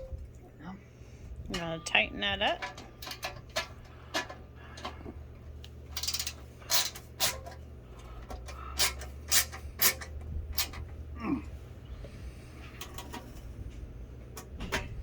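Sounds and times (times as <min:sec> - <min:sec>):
low steady hum: 0:00.0 - 0:15.0
sharp clicks and metal scrapes: 0:02.4 - 0:11.0, 0:12.7 - 0:13.5.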